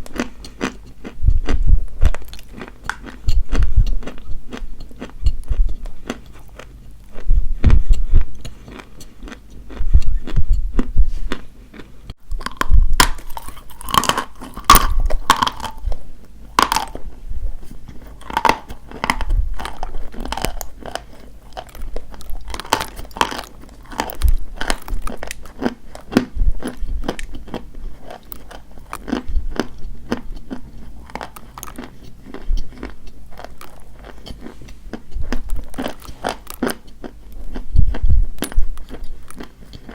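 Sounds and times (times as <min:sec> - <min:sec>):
chalk crunching being chewed: 0:00.0 - 0:39.9.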